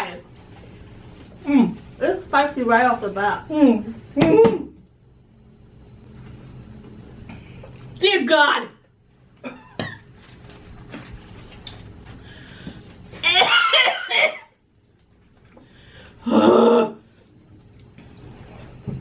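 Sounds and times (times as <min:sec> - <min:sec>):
woman coughing: 0:04.2 - 0:04.8, 0:09.4 - 0:10.0, 0:13.2 - 0:14.5
woman groaning: 0:16.2 - 0:17.0.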